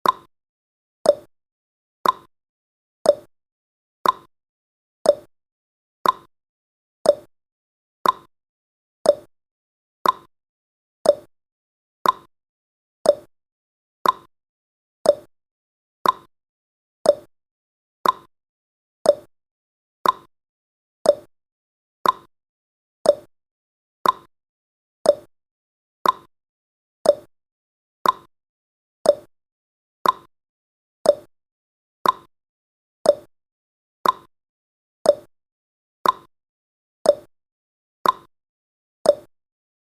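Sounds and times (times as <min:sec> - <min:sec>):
timer ticking tick-tock: 0:00.0 - 0:00.3, 0:01.0 - 0:01.3, 0:02.0 - 0:02.3, 0:03.0 - 0:03.3, 0:04.0 - 0:04.3, 0:05.0 - 0:05.3, 0:06.0 - 0:06.3, 0:07.0 - 0:07.3, 0:08.0 - 0:08.3, 0:09.0 - 0:09.3, 0:10.0 - 0:10.3, 0:11.0 - 0:11.3, 0:12.0 - 0:12.3, 0:13.0 - 0:13.3, 0:14.0 - 0:14.3, 0:15.0 - 0:15.3, 0:16.0 - 0:16.3, 0:17.0 - 0:17.3, 0:18.0 - 0:18.3, 0:19.0 - 0:19.3, 0:20.0 - 0:20.3, 0:21.0 - 0:21.3, 0:22.0 - 0:22.3, 0:23.0 - 0:23.3, 0:24.0 - 0:24.3, 0:25.0 - 0:25.3, 0:26.0 - 0:26.3, 0:27.0 - 0:27.3, 0:28.0 - 0:28.3, 0:29.0 - 0:29.3, 0:30.0 - 0:30.3, 0:31.0 - 0:31.3, 0:32.0 - 0:32.3, 0:33.0 - 0:33.3, 0:34.0 - 0:34.3, 0:35.0 - 0:35.3, 0:36.0 - 0:36.3, 0:37.0 - 0:37.3, 0:38.0 - 0:38.3, 0:39.0 - 0:39.4.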